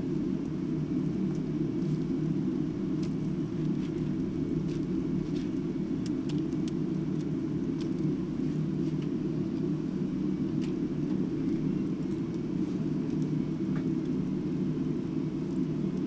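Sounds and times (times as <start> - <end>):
low fire rumble: 0.0 - 16.0.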